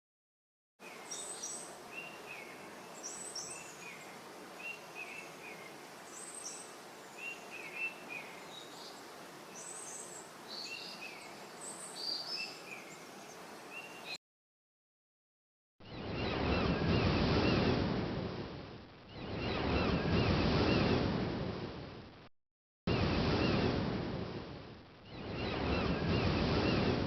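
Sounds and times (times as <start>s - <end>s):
birds chirping: 0.8s - 14.2s
steady background hiss: 0.8s - 14.2s.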